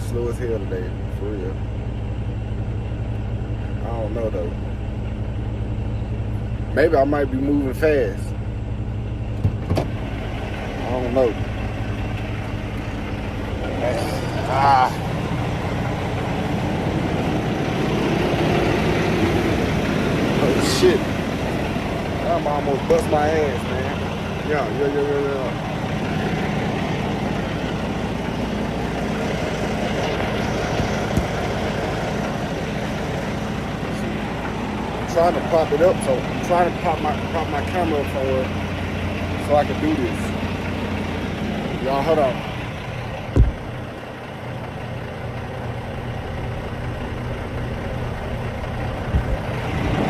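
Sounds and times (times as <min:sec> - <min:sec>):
diesel truck engine idling: 0:00.0 - 0:50.0
short thump: 0:09.4 - 0:10.0, 0:30.7 - 0:31.4, 0:43.3 - 0:43.7
sharp knock: 0:43.3 - 0:43.6.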